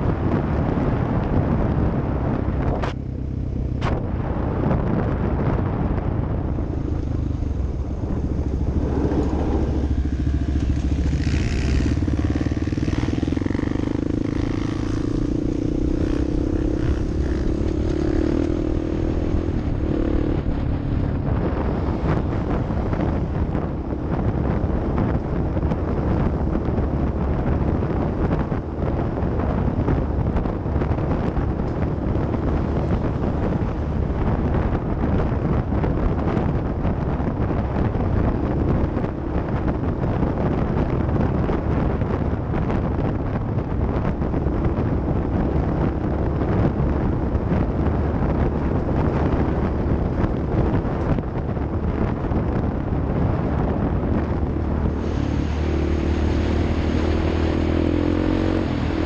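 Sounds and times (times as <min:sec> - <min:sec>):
wind buffeting microphone: 0:00.0 - 0:59.0
vehicle engine running: 0:02.5 - 0:59.0.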